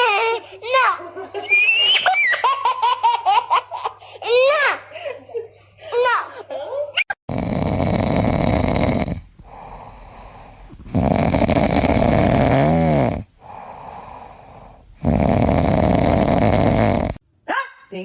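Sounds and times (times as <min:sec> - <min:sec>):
pet snoring loudly: 0:07.3 - 0:17.2.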